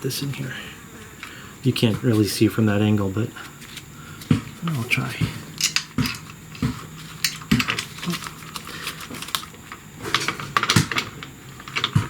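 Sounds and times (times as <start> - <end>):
dull knocks of tools: 4.2 - 7.9
metal parts clicking and tapping: 5.5 - 9.5, 10.1 - 12.0.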